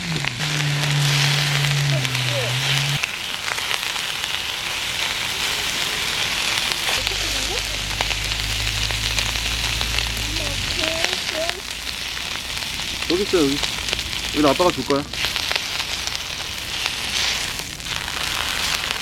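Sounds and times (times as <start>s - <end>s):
low steady hum: 0.0s - 3.0s
beef sizzling on a grill: 0.0s - 19.0s.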